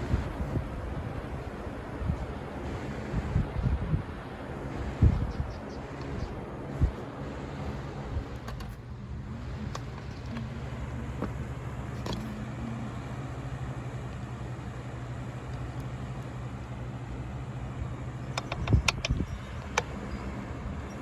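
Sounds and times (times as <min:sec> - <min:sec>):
box fan humming: 0:00.0 - 0:21.0
clicks and knocks: 0:18.4 - 0:19.9.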